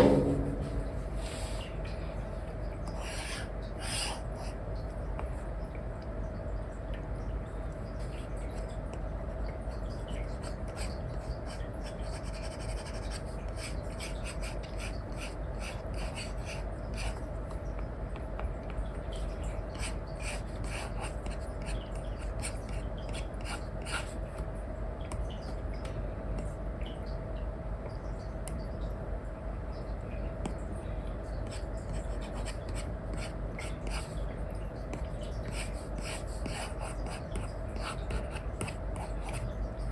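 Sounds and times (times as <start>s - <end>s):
faint hum: 0.0s - 39.9s.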